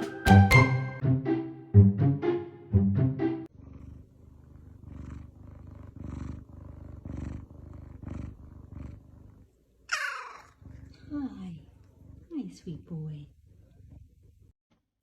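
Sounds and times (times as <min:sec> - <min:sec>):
cat purring: 0:03.5 - 0:14.6.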